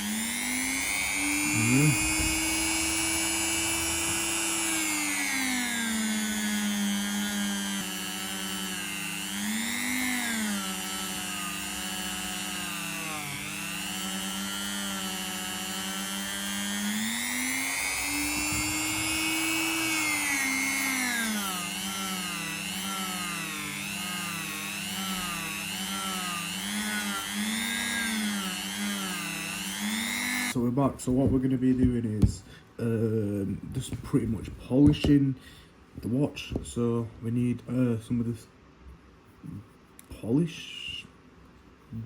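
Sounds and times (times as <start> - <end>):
rotary tool whine: 0.0 - 30.6.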